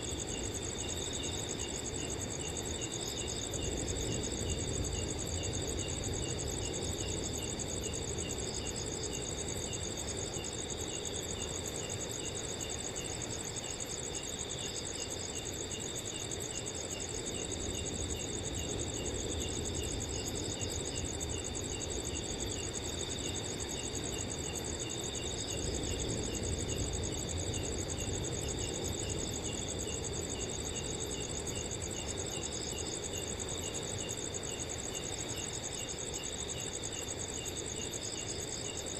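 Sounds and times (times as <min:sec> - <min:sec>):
cricket pulsing trill: 0:00.0 - 0:38.9
crickets chirping: 0:00.0 - 0:38.9.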